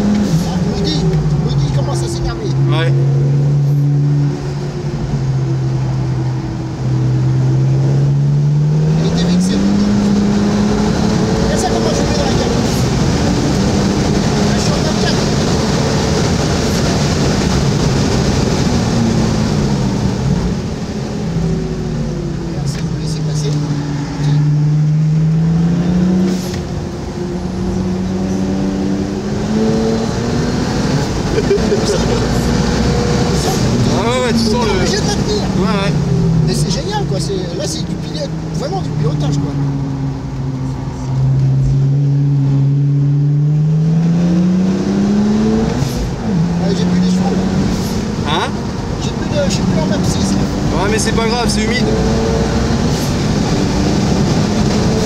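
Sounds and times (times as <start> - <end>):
car engine from inside cabin: 0.0 - 55.0.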